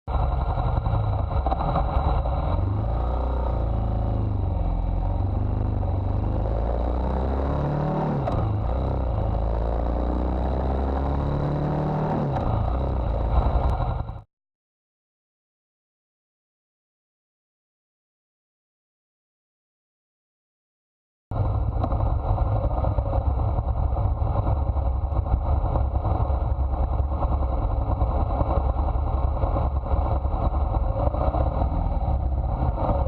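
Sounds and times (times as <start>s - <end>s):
motorcycle engine running: 0.1s - 14.2s, 21.3s - 33.0s.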